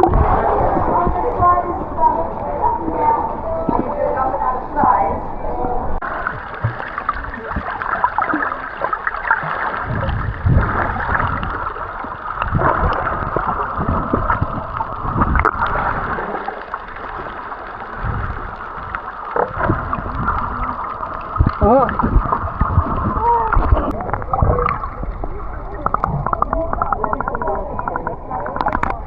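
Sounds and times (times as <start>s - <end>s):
water sloshing and gurgling: 0.0s - 29.0s
low thumps: 9.7s - 16.3s, 17.9s - 29.0s.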